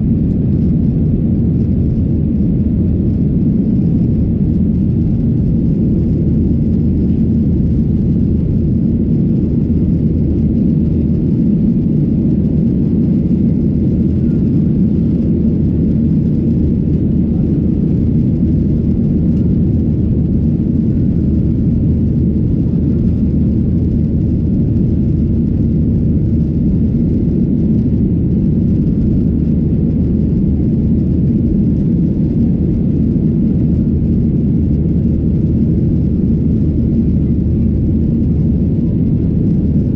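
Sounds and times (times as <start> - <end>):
jet engines rumbling in cabin: 0.0 - 39.9.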